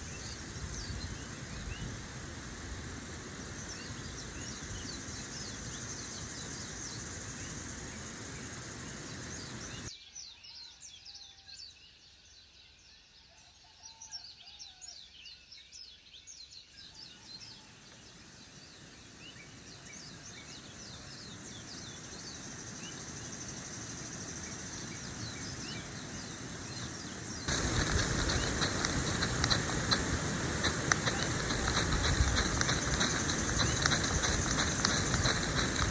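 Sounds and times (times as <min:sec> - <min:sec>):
broad hiss: 0:00.0 - 0:09.9, 0:17.6 - 0:35.9
high insect drone: 0:00.0 - 0:09.9, 0:17.8 - 0:35.9
bird chirps: 0:18.8 - 0:35.9.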